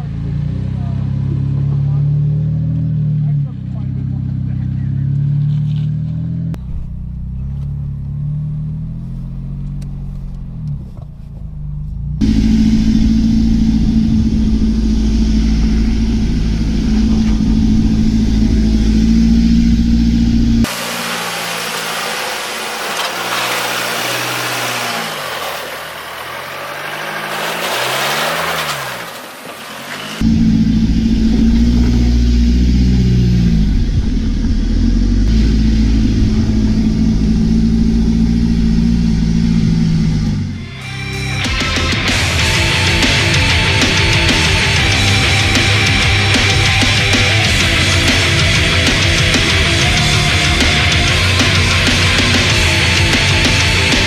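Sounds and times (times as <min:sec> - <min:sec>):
truck engines revving: 0:00.0 - 0:54.0
loud hiss: 0:20.7 - 0:25.1.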